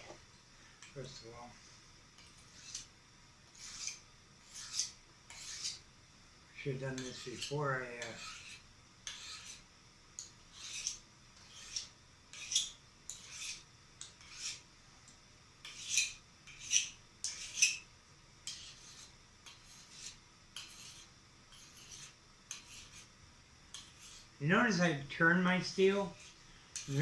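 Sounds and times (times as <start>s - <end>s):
knife scraping on honing steel: 2.2s - 2.9s, 3.5s - 5.8s, 6.9s - 14.7s, 15.6s - 24.8s, 25.8s - 27.0s.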